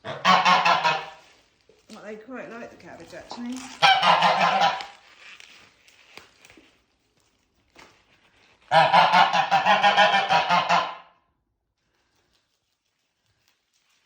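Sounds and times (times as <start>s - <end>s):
geese honking: 0.0s - 1.2s, 3.8s - 4.9s, 8.7s - 11.1s.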